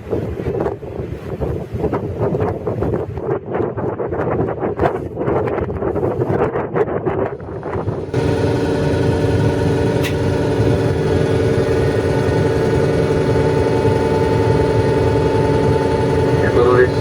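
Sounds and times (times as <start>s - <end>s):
wind noise: 0.0s - 17.0s
train mechanical hum: 8.0s - 17.0s.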